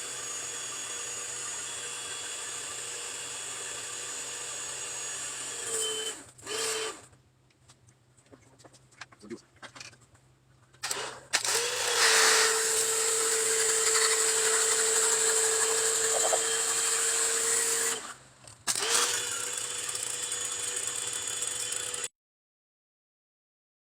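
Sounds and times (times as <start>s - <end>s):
electric motor tool spinning: 0.0s - 7.1s, 10.8s - 22.1s.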